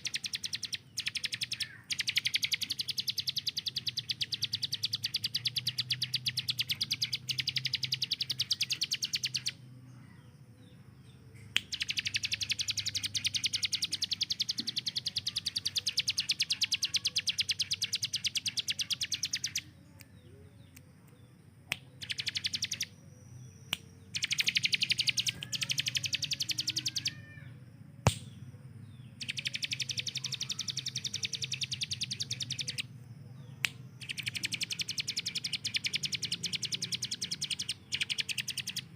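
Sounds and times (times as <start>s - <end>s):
bird singing fast high notes: 24.1s - 27.2s
sharp click: 28.0s - 28.4s.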